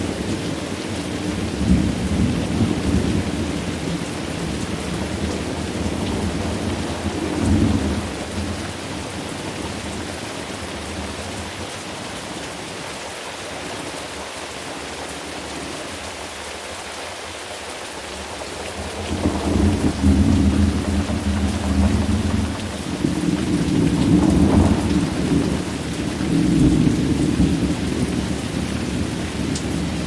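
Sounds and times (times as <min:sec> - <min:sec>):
steady rain hiss: 0:00.0 - 0:30.0
rolling thunder: 0:18.8 - 0:30.0.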